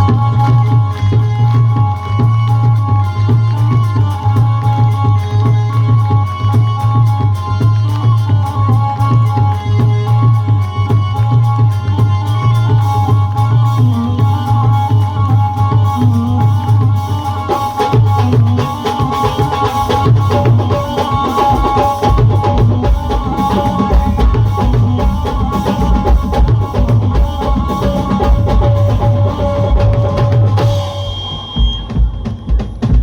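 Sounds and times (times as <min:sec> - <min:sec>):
band playing instrumental: 0:00.0 - 0:33.0
pounding bass drum: 0:13.9 - 0:33.0
held keyboard notes: 0:15.8 - 0:32.9.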